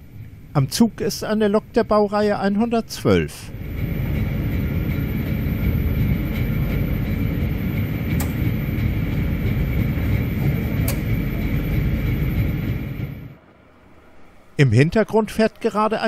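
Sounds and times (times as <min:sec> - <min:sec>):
train wheels rumbling on rails: 0:03.5 - 0:16.0
sharp clicks: 0:08.1 - 0:08.5, 0:10.8 - 0:11.2.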